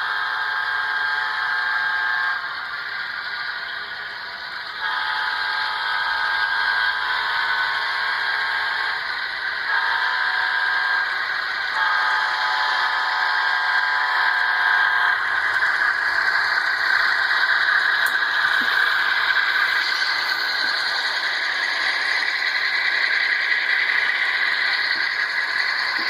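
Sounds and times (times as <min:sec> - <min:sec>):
model train air horn blasts: 0:04.8 - 0:08.9, 0:09.6 - 0:11.1, 0:11.7 - 0:15.2
steady engine hiss: 0:15.3 - 0:26.0.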